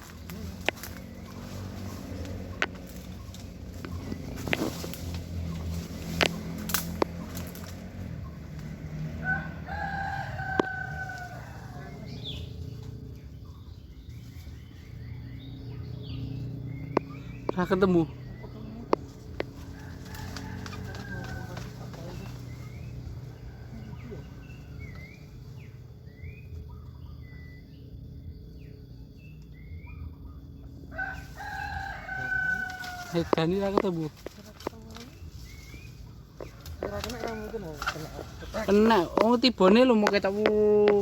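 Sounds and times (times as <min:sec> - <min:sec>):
steady low rumble: 0:00.0 - 0:31.4
sharp crack: 0:06.0 - 0:07.8
rooster crowing: 0:09.0 - 0:12.4, 0:19.5 - 0:25.1, 0:30.8 - 0:33.9.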